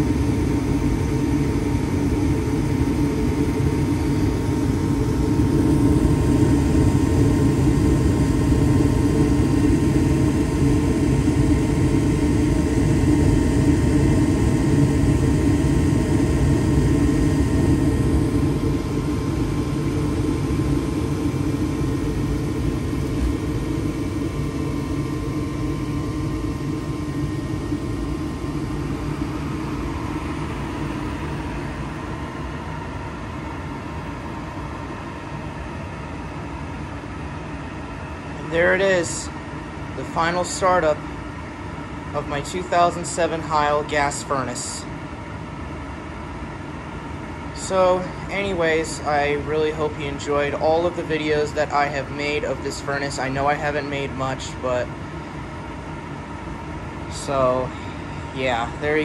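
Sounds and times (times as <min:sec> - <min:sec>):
furnace motor whirring: 0:00.0 - 0:35.4.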